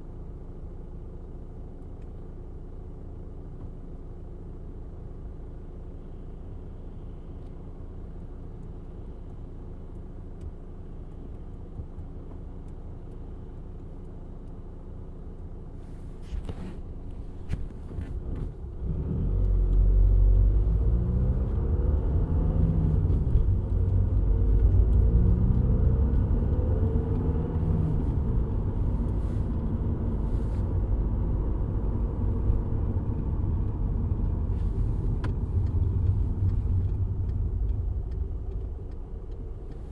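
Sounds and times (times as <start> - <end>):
diesel engine revving: 17.6 - 39.9.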